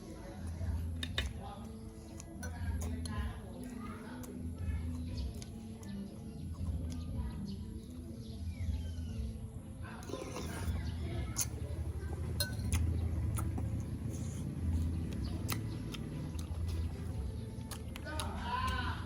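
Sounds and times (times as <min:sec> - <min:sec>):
clicks and smacks of eating: 0:00.1 - 0:08.5, 0:10.0 - 0:19.0
faint bird chirp: 0:00.3 - 0:17.8
steady low hum: 0:04.3 - 0:19.0.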